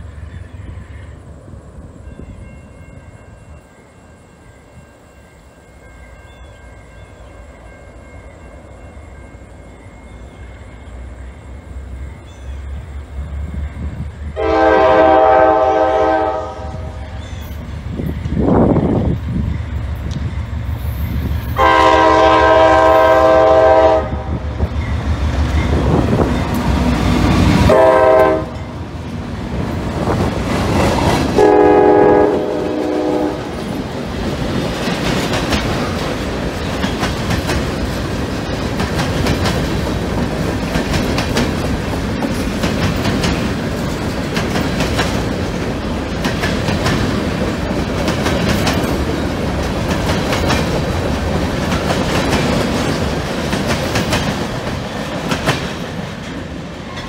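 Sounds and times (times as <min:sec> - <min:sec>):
locomotive air horn blasts: 0:14.4 - 0:17.2, 0:21.5 - 0:24.4, 0:27.6 - 0:28.6, 0:31.4 - 0:33.6
train wheels clacking over rail joints: 0:33.4 - 0:57.0.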